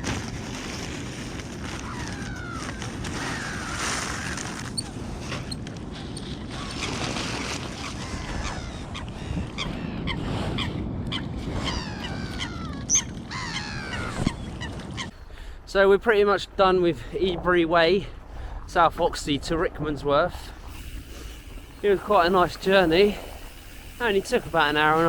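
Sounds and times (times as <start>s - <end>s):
waterbirds squawking and honking: 7.7s - 15.1s, 20.7s - 25.0s.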